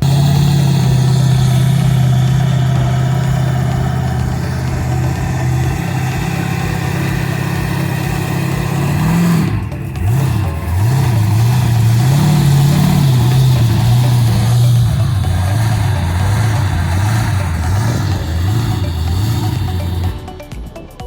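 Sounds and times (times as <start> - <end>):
truck engine idling and revving: 0.0 - 21.0.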